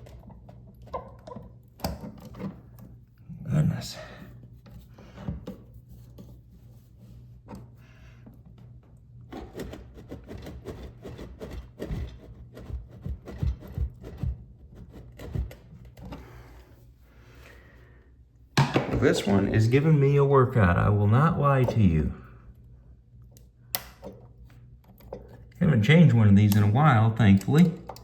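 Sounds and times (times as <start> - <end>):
tools scraping and knocking: 9.3 - 16.4, 18.6 - 19.6.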